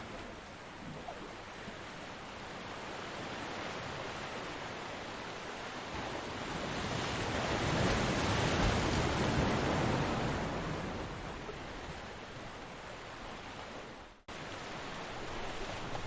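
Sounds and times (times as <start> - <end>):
ocean surf: 0.0 - 16.0.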